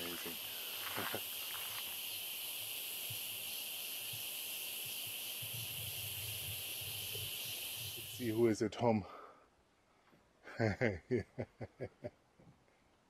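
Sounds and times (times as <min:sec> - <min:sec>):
night insects chorus: 0:00.0 - 0:08.5.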